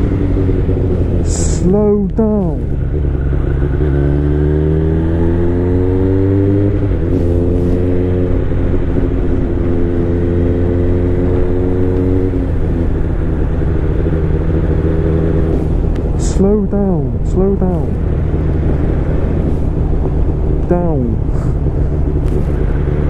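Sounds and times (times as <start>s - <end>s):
motorcycle engine accelerating: 0.0s - 23.0s
wind rumble on microphone: 18.0s - 23.0s.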